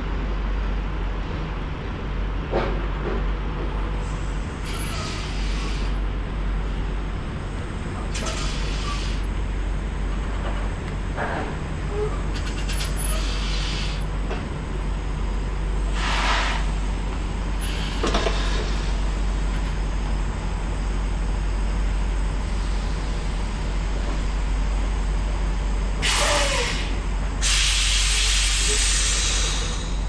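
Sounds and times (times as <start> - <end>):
air brake hisses: 4.2 - 6.0, 8.2 - 9.3, 12.5 - 14.1, 15.9 - 16.8, 17.6 - 19.0, 26.0 - 30.0.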